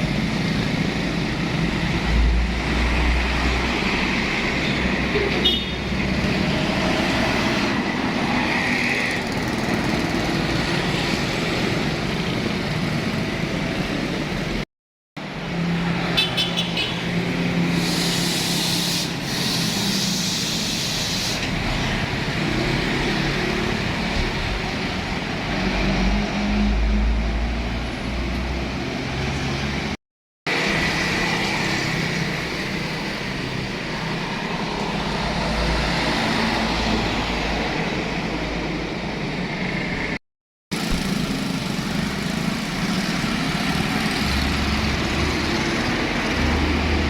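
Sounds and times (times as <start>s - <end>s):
heavy truck engines: 0.0s - 14.6s, 15.2s - 47.0s
traffic noise: 0.0s - 47.0s
hissing air: 17.6s - 21.7s.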